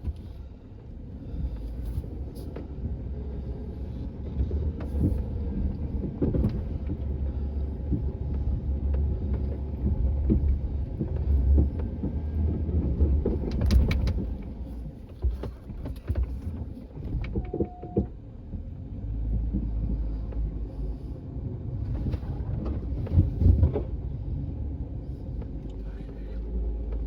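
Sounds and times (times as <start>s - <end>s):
vehicle engine running low: 0.0s - 27.0s
knocks and clunks: 4.3s - 20.5s, 21.8s - 24.0s
short tone: 17.4s - 18.0s.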